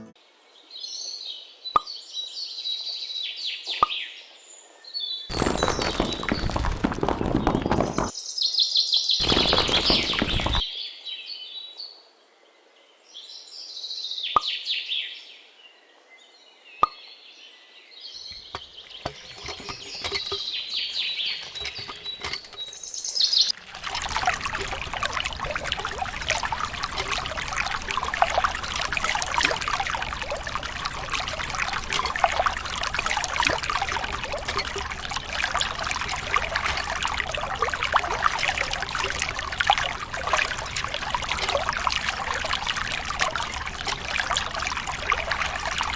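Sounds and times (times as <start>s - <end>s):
water pouring: 5.3s - 8.2s, 9.2s - 10.7s, 18.3s - 45.9s
birds chirping: 9.2s - 10.8s, 18.0s - 45.9s.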